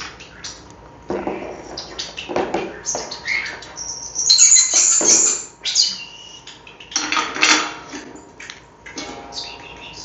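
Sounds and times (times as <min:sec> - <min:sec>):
starlings calling: 0:00.0 - 0:00.7, 0:01.6 - 0:07.2, 0:08.9 - 0:10.0.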